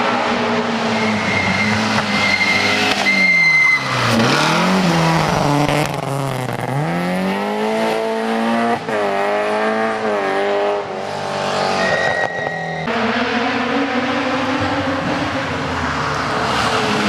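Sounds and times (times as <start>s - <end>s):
rally car engine at high revs: 0.0s - 11.9s, 12.8s - 17.0s
tyre squeal: 0.8s - 4.4s, 11.6s - 12.9s.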